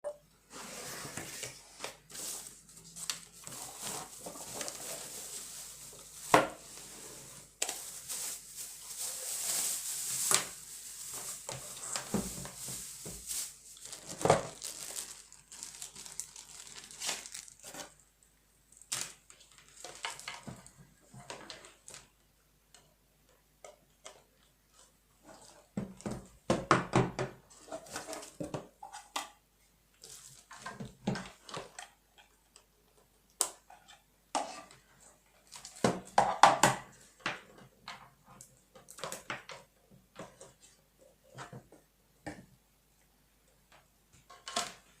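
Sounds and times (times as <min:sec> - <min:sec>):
packaging crinkling and rustling: 0:01.0 - 0:18.0, 0:18.7 - 0:20.7.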